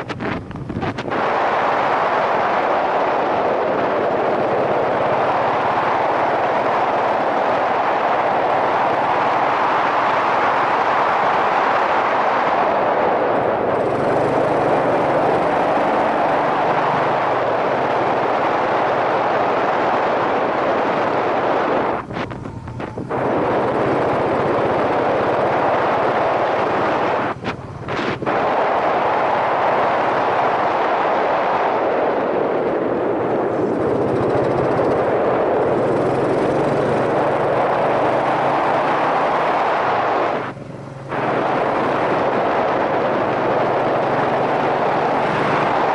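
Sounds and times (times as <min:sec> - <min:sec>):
motorcycle engine running low: 0:00.0 - 0:01.1, 0:13.4 - 0:19.2, 0:20.9 - 0:28.6, 0:33.2 - 0:45.9
wind rushing over microphone: 0:00.0 - 0:45.9.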